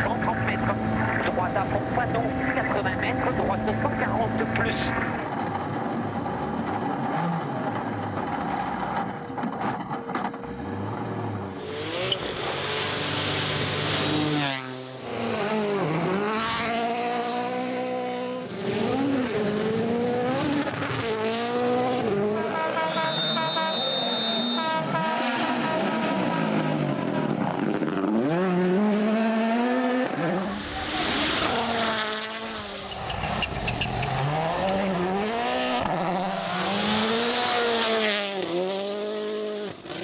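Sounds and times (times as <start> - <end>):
rally car engines revving: 0.0 - 40.0.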